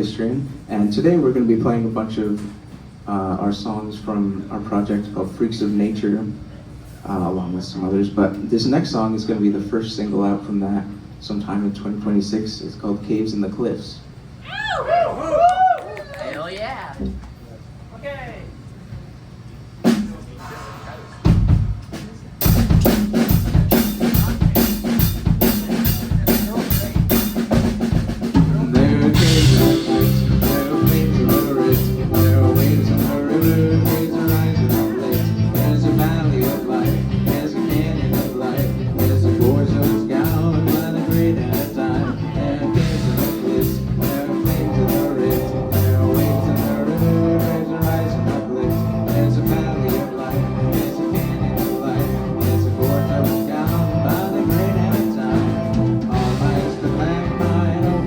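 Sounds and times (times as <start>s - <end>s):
steady cymbal beat: 19.9s - 58.0s
live band playing: 21.2s - 58.0s.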